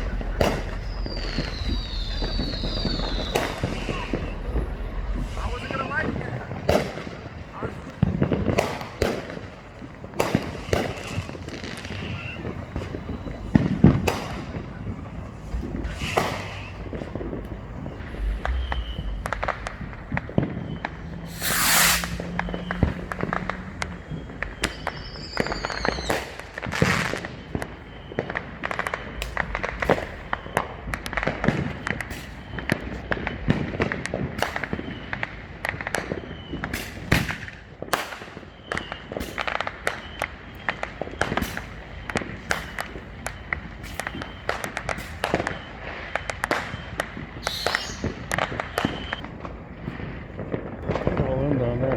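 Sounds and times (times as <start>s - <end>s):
hissing firework burst: 0.0s - 51.3s
firework bangs and firecracker pops: 0.0s - 51.9s
whistling firework: 0.0s - 51.9s.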